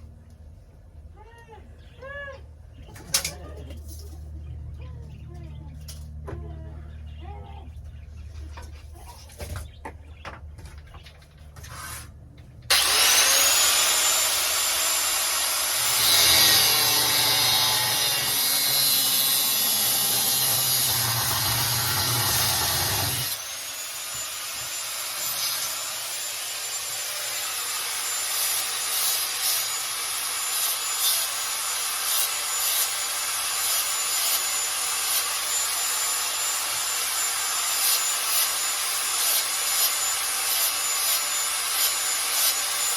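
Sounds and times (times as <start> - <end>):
angle grinder cutting metal: 12.7 - 42.9.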